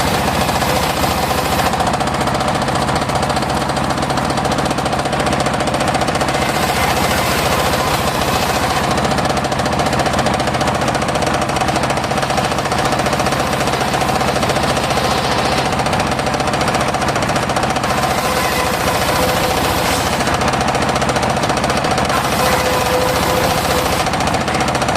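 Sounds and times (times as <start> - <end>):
engine running fast: 0.0 - 24.9
circular saw whine: 6.2 - 9.2, 17.8 - 24.9.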